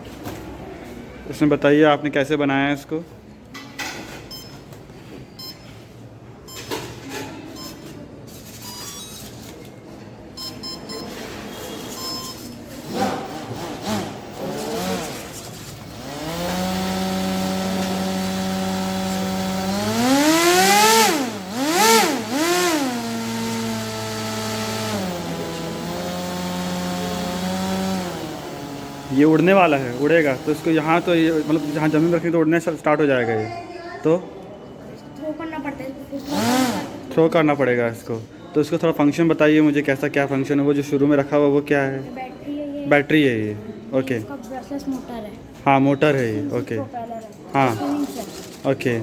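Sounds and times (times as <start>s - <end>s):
model airplane motor buzzing: 12.8s - 32.2s, 36.2s - 36.9s.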